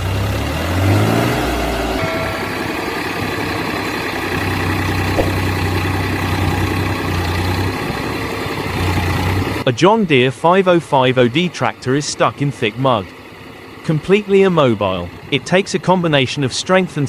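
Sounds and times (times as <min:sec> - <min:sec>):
heavy vehicle engine revving: 0:00.0 - 0:09.7.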